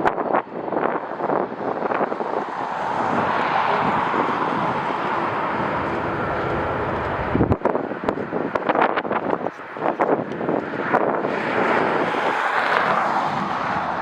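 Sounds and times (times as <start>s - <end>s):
jet airliner engine noise: 0.0s - 14.0s
wind gusting on microphone: 0.0s - 14.0s.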